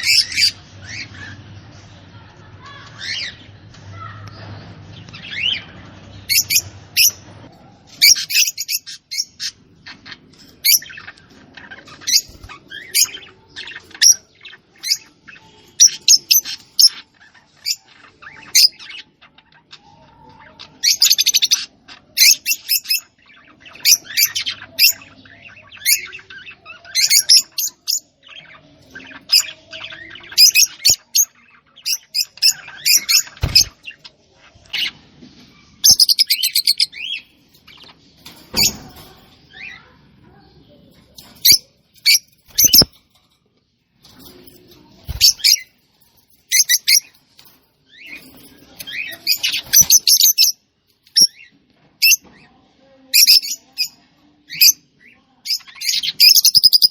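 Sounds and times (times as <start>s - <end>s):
small bird chirping: 5.0s - 7.2s, 7.9s - 43.4s, 44.0s - 52.3s, 55.4s - 56.9s.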